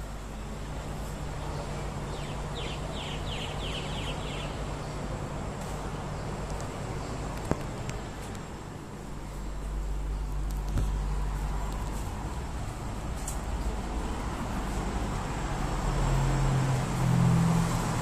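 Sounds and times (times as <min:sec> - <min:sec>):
low outdoor background hum: 0:00.0 - 0:18.0
bird chirping: 0:01.4 - 0:05.2.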